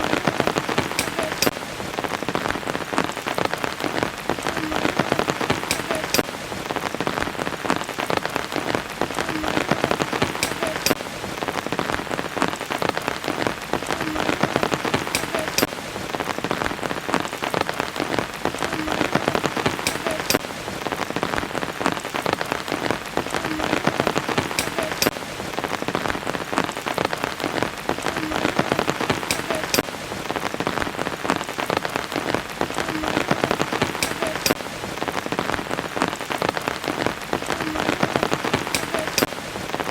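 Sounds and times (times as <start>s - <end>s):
sharp raindrop hits: 0.0s - 39.9s
steady rain falling: 0.0s - 39.9s.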